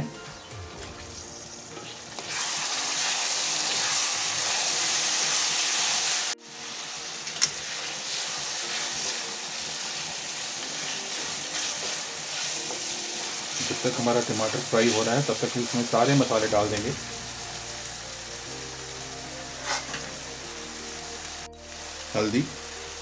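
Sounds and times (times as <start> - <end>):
tomatoes sizzling in oil: 0.9 - 23.0
spatula stirring: 7.6 - 16.2.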